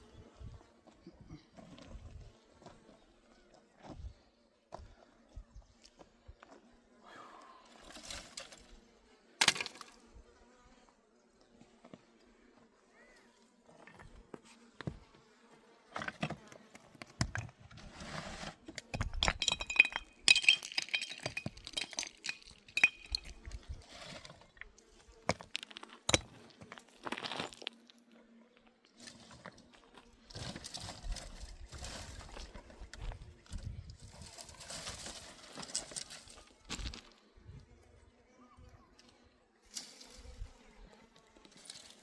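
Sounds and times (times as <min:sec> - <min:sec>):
small hard objects clinking: 0:18.8 - 0:23.7.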